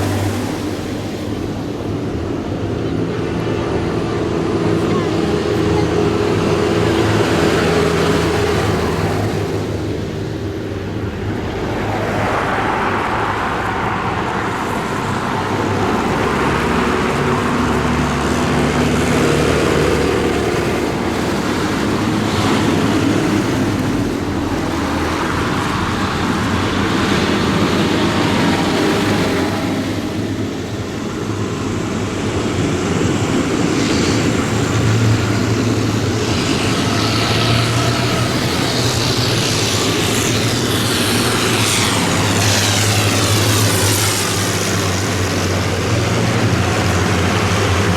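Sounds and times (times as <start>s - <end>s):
rushing road noise: 0.0s - 47.9s
tractor engines passing: 0.0s - 47.9s.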